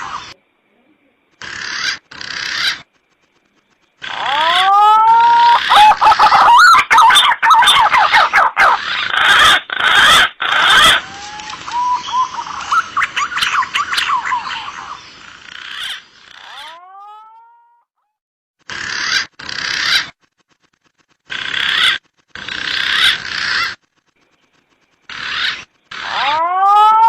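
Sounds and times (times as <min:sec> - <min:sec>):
pigeon whistling calls: 0:04.2 - 0:15.0.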